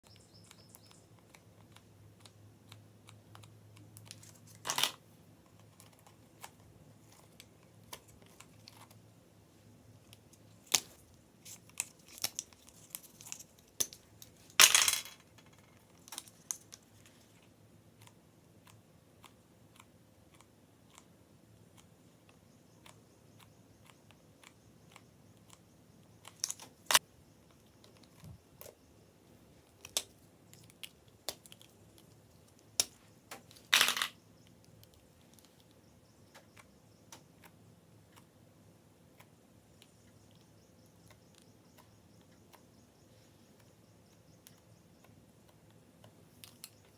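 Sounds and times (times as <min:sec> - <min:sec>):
small clicks and taps: 0:34.4 - 0:38.3.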